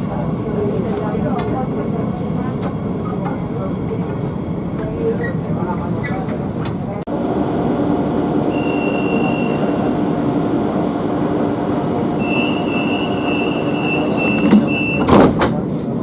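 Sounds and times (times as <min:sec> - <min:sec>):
train wheels rumbling on rails: 0:00.0 - 0:16.0
high wheel squeal: 0:12.2 - 0:15.1.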